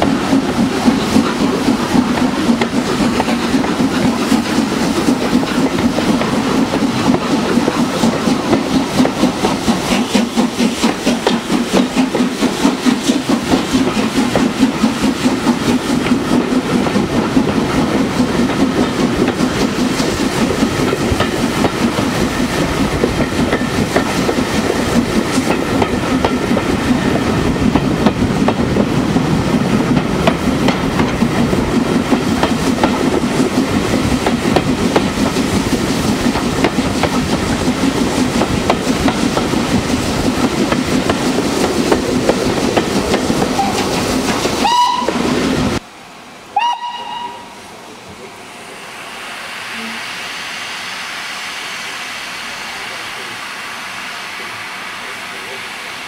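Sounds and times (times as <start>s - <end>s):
train wheels rumbling on track: 0.0s - 56.0s
steam whistle: 44.6s - 45.3s, 46.5s - 47.6s, 49.6s - 51.4s.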